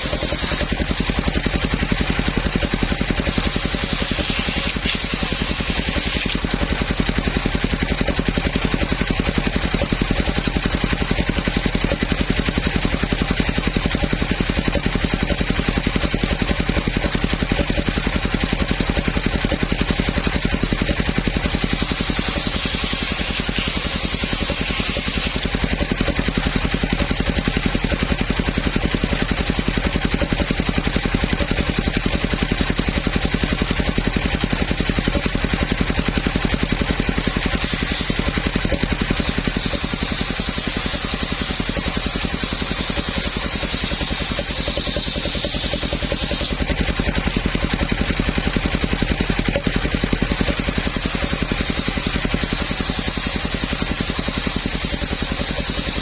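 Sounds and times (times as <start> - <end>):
saw blade hiss: 0.0 - 1.1, 3.1 - 6.4, 21.3 - 25.4, 37.1 - 46.6, 50.3 - 56.0
sawmill engine running: 0.0 - 56.0.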